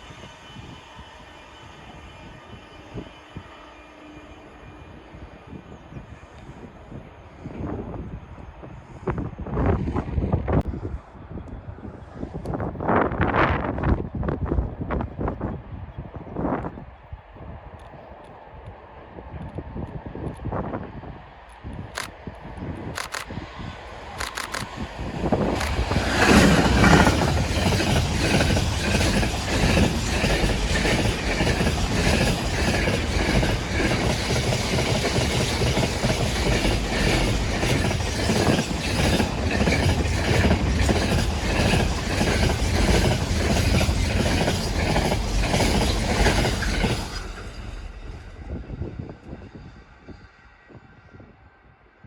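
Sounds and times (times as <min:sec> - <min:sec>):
train wheels clicking over rail joints: 0:21.9 - 0:22.1, 0:22.9 - 0:23.4, 0:24.1 - 0:48.6.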